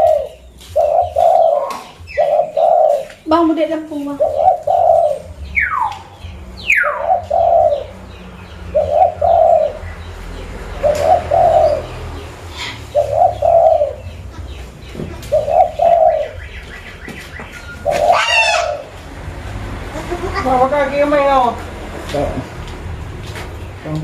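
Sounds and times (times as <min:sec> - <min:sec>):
dove cooing: 0:00.0 - 0:06.0, 0:06.6 - 0:08.0, 0:08.6 - 0:09.9, 0:10.8 - 0:19.0.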